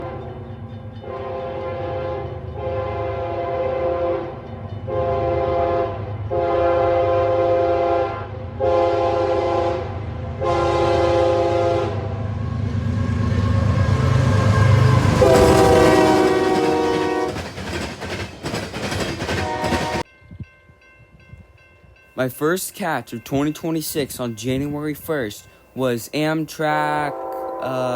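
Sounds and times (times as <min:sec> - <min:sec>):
locomotive horn blasts: 0:01.0 - 0:12.1, 0:14.2 - 0:17.5, 0:19.4 - 0:20.0, 0:26.9 - 0:27.9
train wheels clicking over rail joints: 0:13.9 - 0:20.1.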